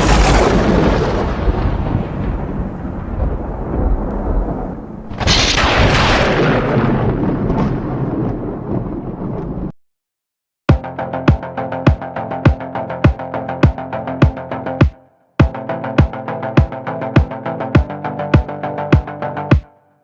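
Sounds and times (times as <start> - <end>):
thunder crack: 0.0 - 9.8
thunder rumbling: 0.0 - 9.8.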